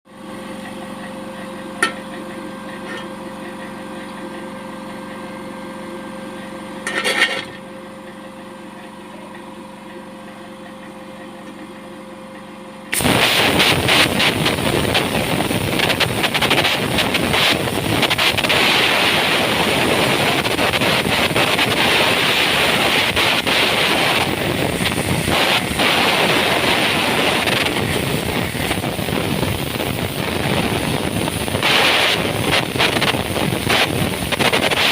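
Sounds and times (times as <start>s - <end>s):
disc cutter humming: 12.9s - 34.9s.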